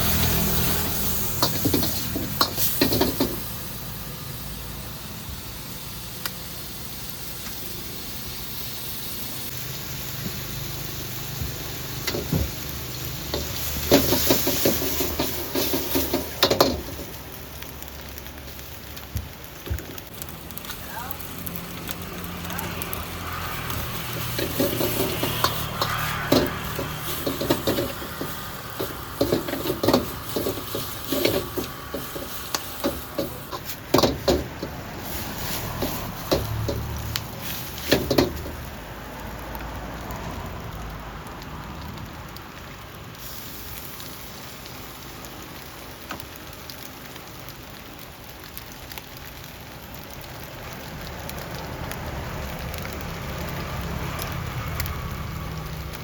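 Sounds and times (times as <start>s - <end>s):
food sizzling in a wok: 0.0s - 56.0s
metal spatula scraping a pan: 23.8s - 36.4s.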